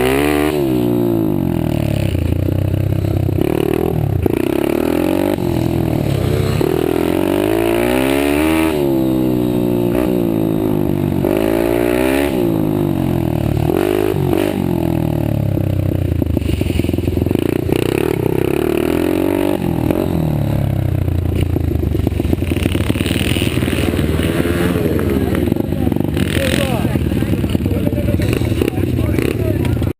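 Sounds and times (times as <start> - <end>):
pit bike engines revving: 0.0 - 29.9.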